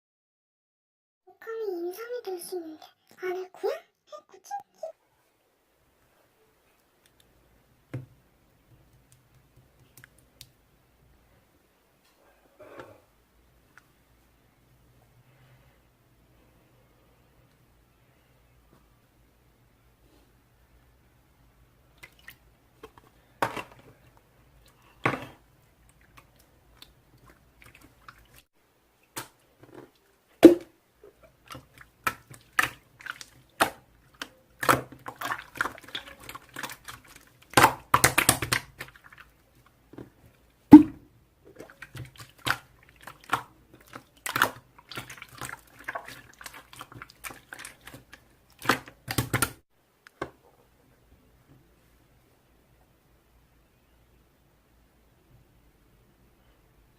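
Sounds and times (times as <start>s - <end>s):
slime squished by hand: 31.4s - 39.3s.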